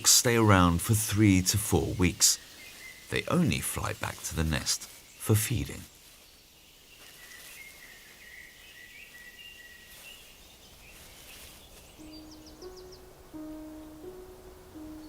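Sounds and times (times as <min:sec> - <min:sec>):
soft forest hiss: 0:00.0 - 0:15.0
high drawn-out bird calls: 0:04.8 - 0:15.0.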